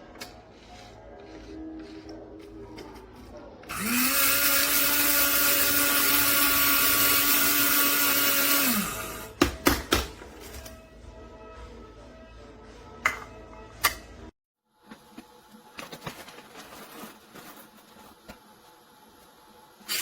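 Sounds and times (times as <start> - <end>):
coffee grinder motor whirring: 3.7 - 9.4.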